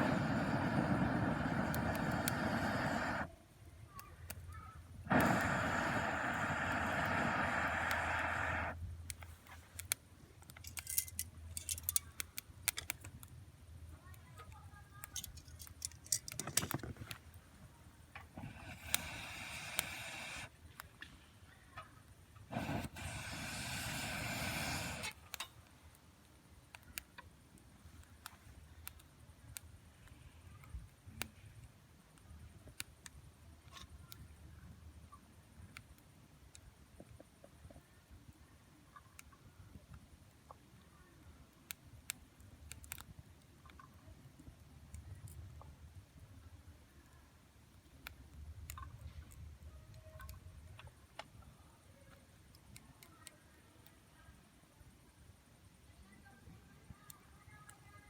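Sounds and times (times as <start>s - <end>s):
wood fire crackling and popping: 0.0s - 3.3s, 5.1s - 9.2s, 18.1s - 21.0s, 22.5s - 25.5s.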